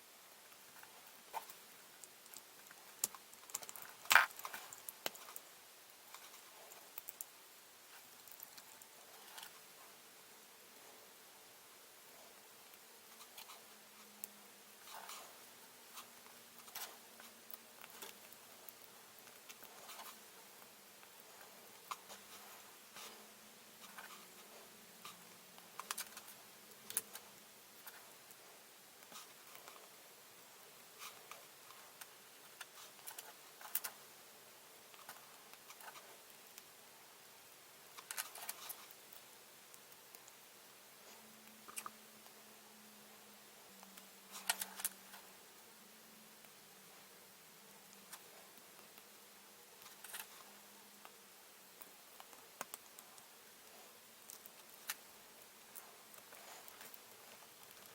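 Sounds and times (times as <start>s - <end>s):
low steady hum: 0.0s - 57.9s
plastic parts clicking and scratching: 0.8s - 5.4s, 13.1s - 20.2s, 21.0s - 28.4s, 31.0s - 34.0s, 37.9s - 40.4s, 43.8s - 45.2s, 49.8s - 51.2s, 55.7s - 57.9s.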